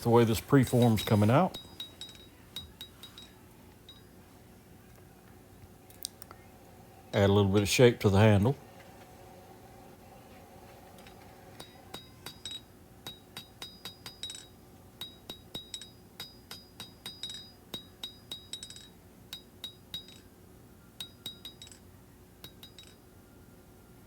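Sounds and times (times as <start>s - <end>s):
hammer striking steel on anvil: 11.6s - 20.2s.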